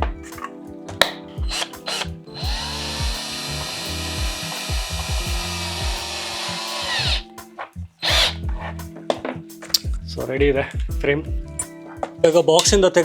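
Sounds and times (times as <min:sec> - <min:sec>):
electric drill-driver whining: 0:01.4 - 0:07.3, 0:08.0 - 0:08.4.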